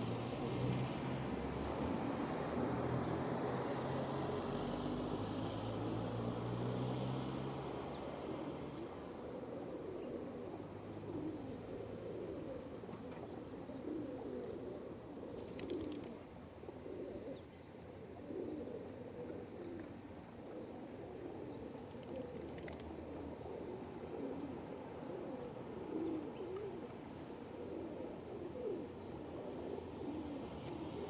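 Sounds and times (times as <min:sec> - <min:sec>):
pigeons cooing: 0:08.0 - 0:31.0.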